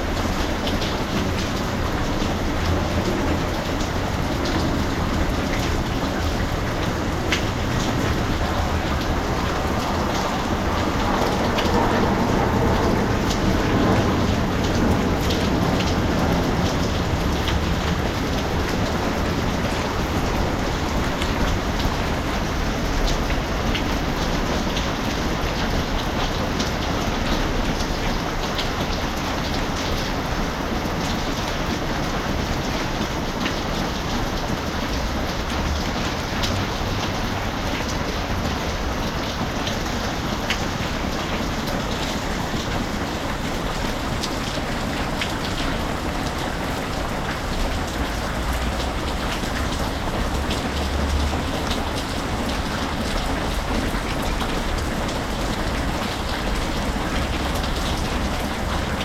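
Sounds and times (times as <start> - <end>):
steady rain falling: 0.0 - 59.0
raindrop ticks: 0.1 - 59.0.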